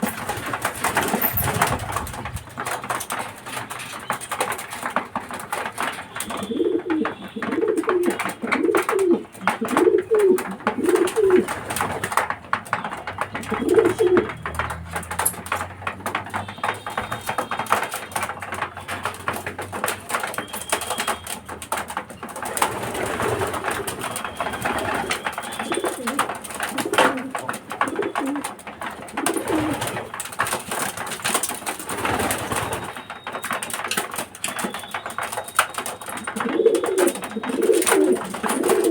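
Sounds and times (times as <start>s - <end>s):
rustling: 0.0s - 7.0s, 33.6s - 38.9s
pigeons cooing: 6.3s - 11.8s, 13.4s - 14.4s, 22.6s - 30.1s, 36.1s - 38.9s.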